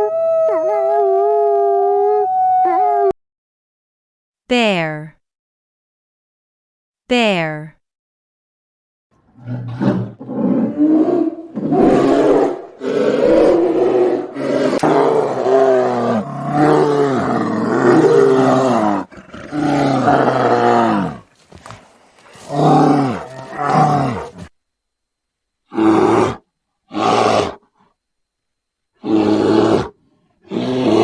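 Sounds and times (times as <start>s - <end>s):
bear growling: 9.3s - 24.5s, 25.7s - 27.8s, 29.0s - 31.0s.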